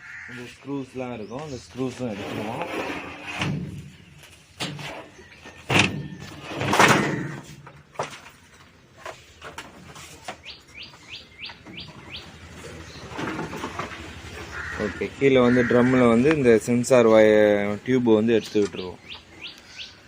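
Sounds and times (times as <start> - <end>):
bird chirping rising notes: 10.4 - 16.8.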